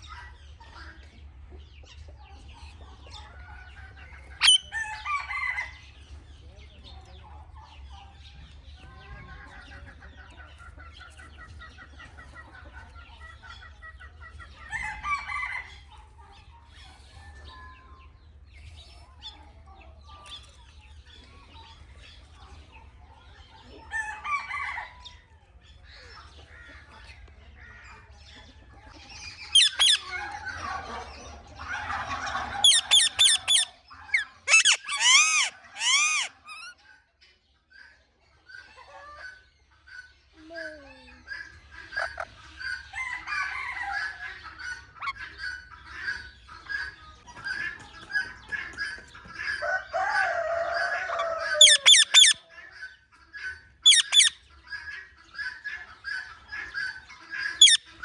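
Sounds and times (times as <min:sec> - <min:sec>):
parakeet screeching: 0:04.4 - 0:04.6, 0:29.6 - 0:30.0, 0:32.6 - 0:36.7, 0:51.5 - 0:52.4, 0:53.8 - 0:54.4, 0:57.6 - 0:57.9
parakeet chirping and chattering: 0:04.4 - 0:04.7, 0:29.2 - 0:30.1, 0:32.5 - 0:36.7, 0:51.6 - 0:52.4, 0:53.8 - 0:54.4, 0:56.8 - 0:58.0.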